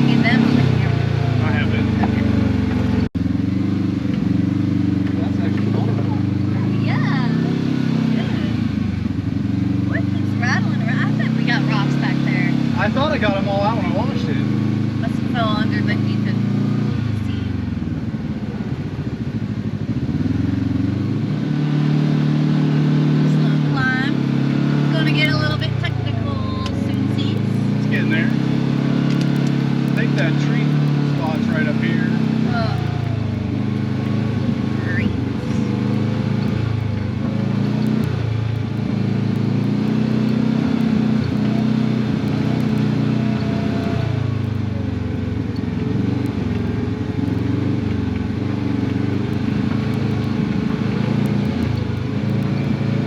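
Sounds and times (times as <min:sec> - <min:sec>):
utv engine running: 0:00.0 - 0:53.0.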